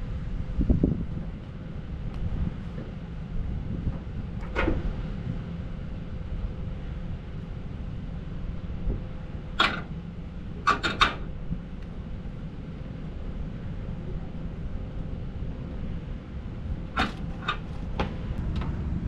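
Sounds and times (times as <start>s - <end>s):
diesel truck engine rumbling: 0.0s - 19.0s.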